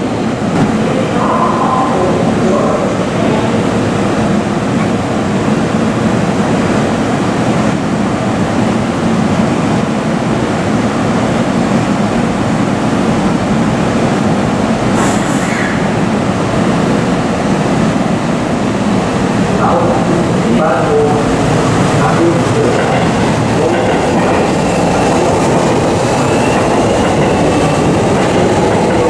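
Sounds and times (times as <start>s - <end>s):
electric train equipment humming: 15.8s - 29.0s.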